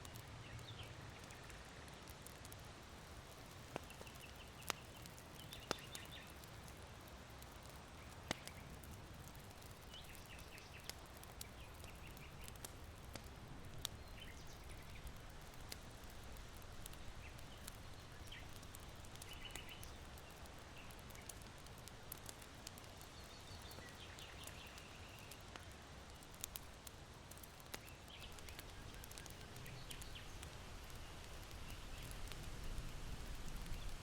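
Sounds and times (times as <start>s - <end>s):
charcoal crackling with pops: 0.0s - 34.0s
small birds chirping faintly: 0.0s - 34.0s
low rumble of wind: 28.2s - 34.0s.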